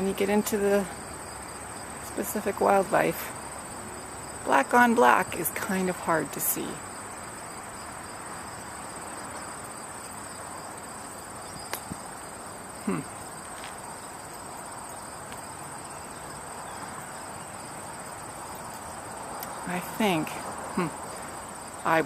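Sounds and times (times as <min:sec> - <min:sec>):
insects trilling: 0:00.0 - 0:22.0
outdoor hiss: 0:00.0 - 0:22.0.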